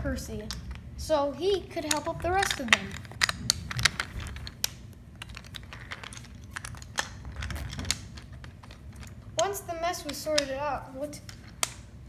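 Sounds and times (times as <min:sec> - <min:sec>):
wooden toys clicking and knocking: 0:00.0 - 0:12.0.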